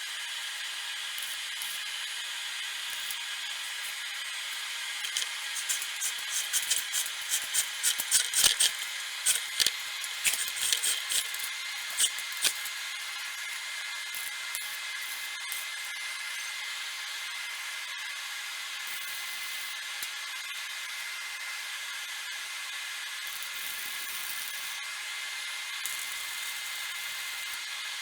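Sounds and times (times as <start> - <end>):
welder crackling: 4.5 - 12.7
welder hissing: 5.0 - 12.6.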